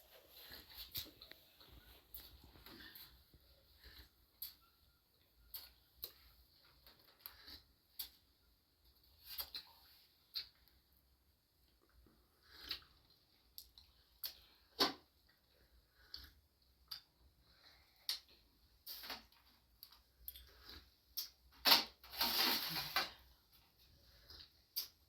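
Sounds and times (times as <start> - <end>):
light clicks and taps of objects: 17.9 - 25.0
rustling scrape: 22.1 - 23.2.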